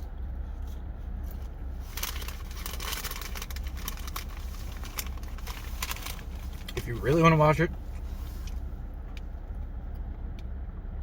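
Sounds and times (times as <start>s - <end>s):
steady low hum: 0.0s - 11.0s
food packaging crinkling: 1.8s - 7.1s.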